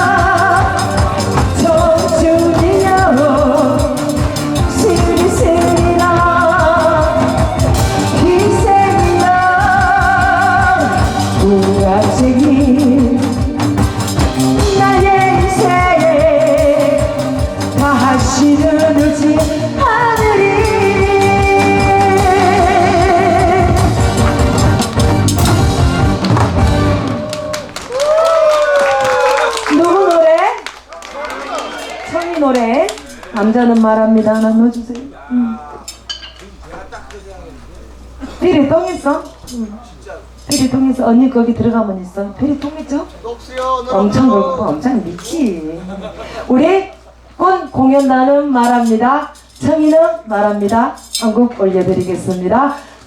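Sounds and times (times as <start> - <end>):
person singing with vibrato: 0.0 - 24.5
backing track with beat: 0.0 - 28.2.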